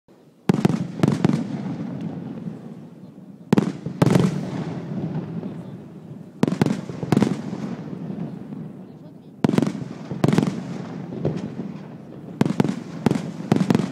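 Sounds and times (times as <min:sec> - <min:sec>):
firework shells bursting: 0:03.5 - 0:13.9.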